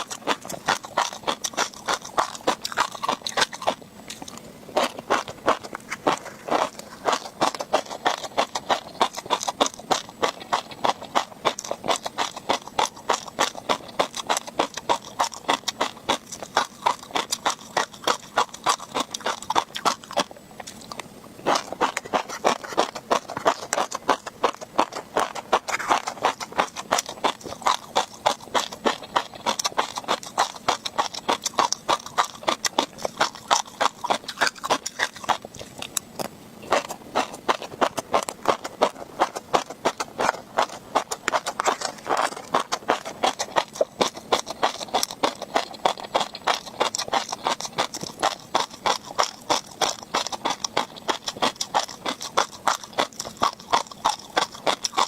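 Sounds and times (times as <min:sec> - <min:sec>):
chewing popping fish roe: 0:00.0 - 0:55.0.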